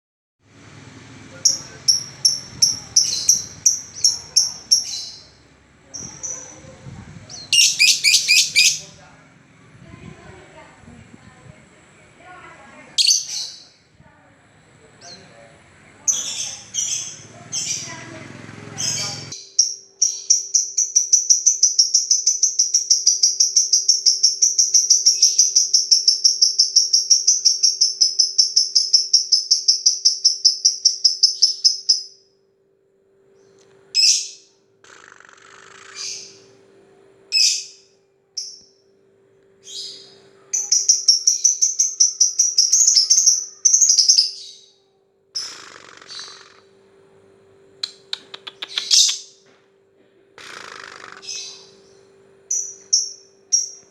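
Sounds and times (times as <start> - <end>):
lovebird rapid ticking song: 1.4 - 6.6, 7.3 - 8.8, 18.8 - 32.1, 40.6 - 44.5, 47.8 - 49.4, 52.5 - 53.9
lovebird short chirps: 7.4 - 8.8, 47.8 - 49.3.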